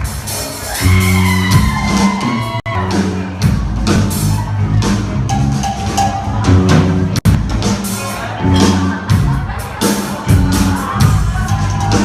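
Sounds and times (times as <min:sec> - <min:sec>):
heavy bass line: 0:00.0 - 0:12.0
live rock band playing: 0:00.0 - 0:12.0
drum hits: 0:05.1 - 0:09.4.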